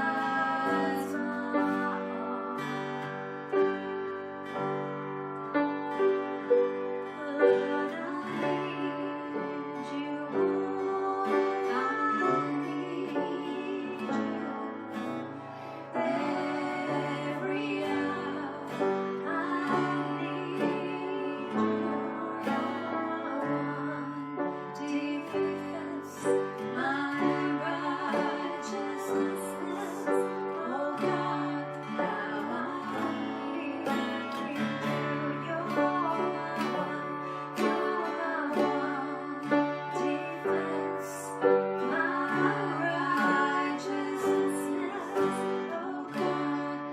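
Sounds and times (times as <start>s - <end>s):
woman singing: 0.0s - 3.7s, 7.0s - 46.9s
acoustic guitar: 0.0s - 46.9s.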